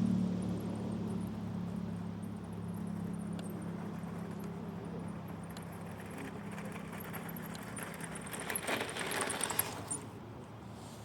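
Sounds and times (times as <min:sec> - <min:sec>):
vehicle engine humming: 0:00.0 - 0:11.0
clattering and rattling: 0:05.3 - 0:10.0.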